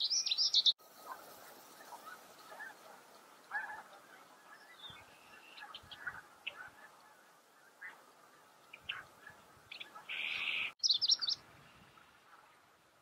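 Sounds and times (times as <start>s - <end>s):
wild birds chirping: 0.0s - 13.0s.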